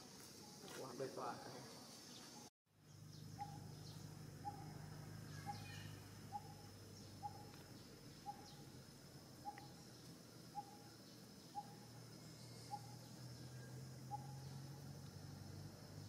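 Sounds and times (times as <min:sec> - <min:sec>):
faint bird chirps: 0:01.8 - 0:08.8, 0:09.4 - 0:14.9
bird repeating low note: 0:02.9 - 0:07.5.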